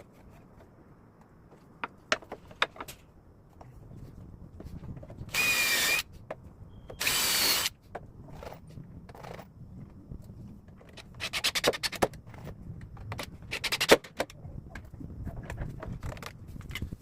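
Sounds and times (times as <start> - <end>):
power drill whining: 5.3 - 6.0, 6.9 - 7.7.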